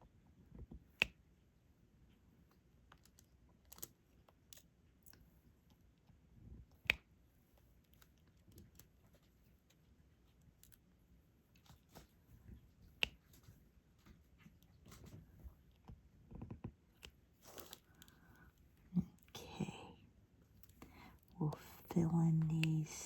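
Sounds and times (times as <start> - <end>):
small clicks and taps: 0.4 - 1.3, 11.5 - 18.4.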